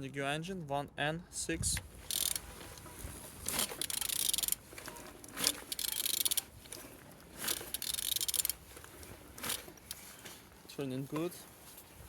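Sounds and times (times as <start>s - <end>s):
ratchet wrench clicking: 2.0s - 2.5s, 3.5s - 4.6s, 5.4s - 6.5s, 7.4s - 8.6s.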